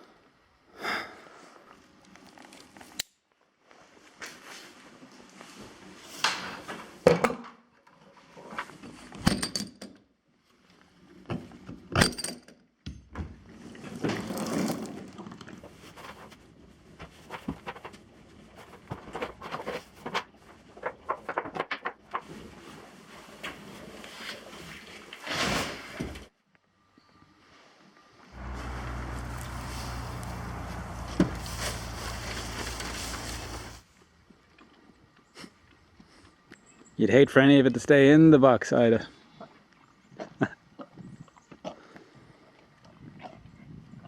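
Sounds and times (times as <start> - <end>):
rustling and scraping: 13.6 - 26.3, 28.4 - 33.9.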